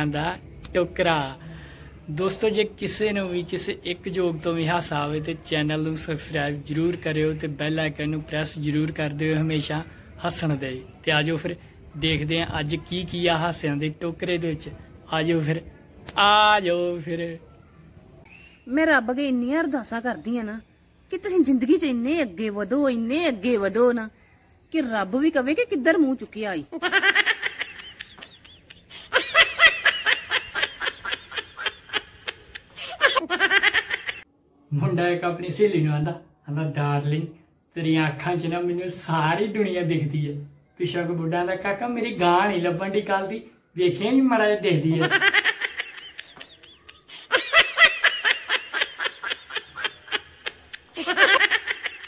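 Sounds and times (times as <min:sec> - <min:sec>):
person laughing: 0:26.7 - 0:34.2, 0:45.0 - 0:52.0.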